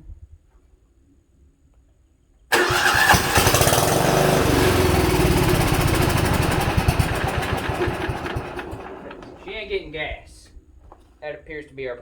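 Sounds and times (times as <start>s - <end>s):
lawn tractor engine cranking: 2.5s - 9.9s.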